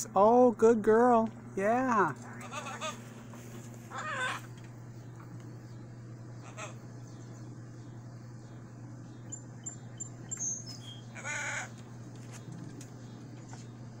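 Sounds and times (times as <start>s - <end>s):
low hum: 0.0s - 14.0s
parrot calls: 2.2s - 3.1s, 3.9s - 4.6s, 6.4s - 6.9s, 10.4s - 11.8s.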